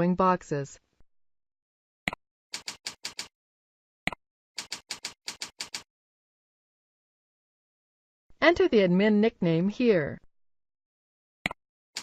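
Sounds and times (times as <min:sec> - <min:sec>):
keyboard typing: 0:02.5 - 0:03.3, 0:04.6 - 0:05.9.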